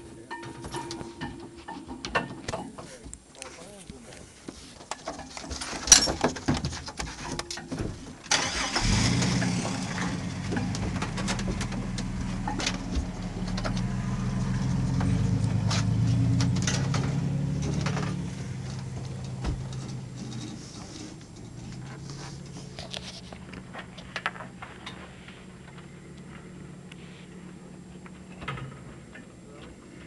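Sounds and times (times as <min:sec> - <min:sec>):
vehicle engine starting and running: 0:08.3 - 0:30.0
clicks and knocks: 0:09.2 - 0:25.0.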